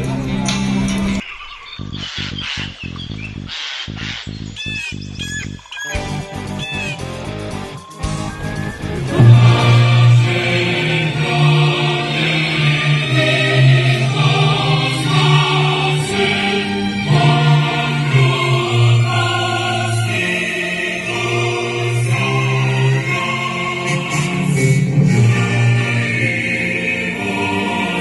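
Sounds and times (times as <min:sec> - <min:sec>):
choir singing long notes: 0:08.8 - 0:28.0.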